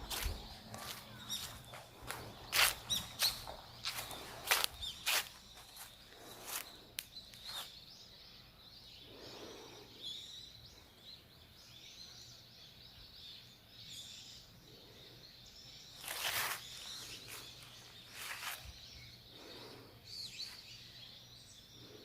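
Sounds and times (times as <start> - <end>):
small songbirds twittering: 0.0 - 22.0
rustle: 16.0 - 18.8.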